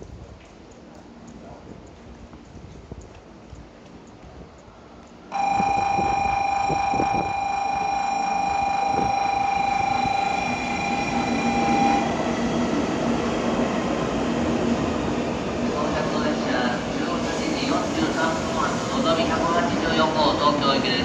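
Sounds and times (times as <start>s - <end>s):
train running noise: 0.0s - 21.0s
steady high-pitched tone: 5.3s - 12.5s.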